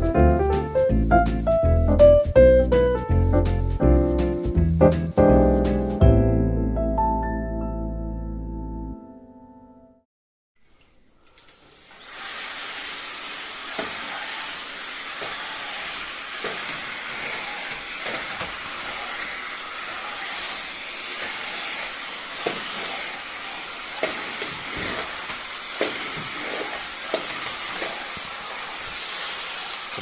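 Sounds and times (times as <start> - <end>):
stick vacuum motor whining: 11.2 - 30.0.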